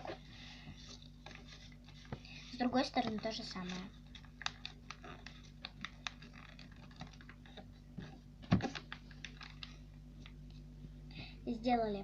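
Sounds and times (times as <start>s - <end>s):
paper crackling and rustling: 0.0s - 10.4s
paper thump: 8.4s - 8.9s.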